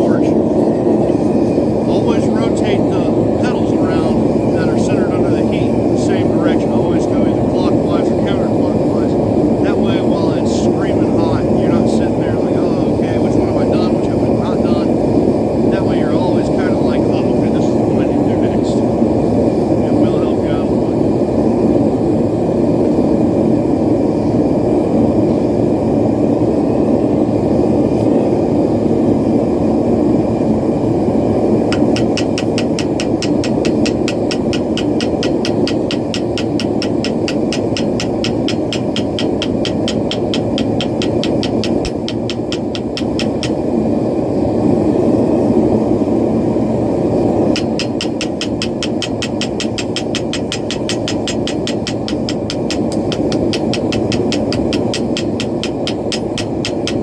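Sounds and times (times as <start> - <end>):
forge burner roaring: 0.0 - 57.0
rapid even ticking: 31.7 - 43.7, 47.5 - 57.0.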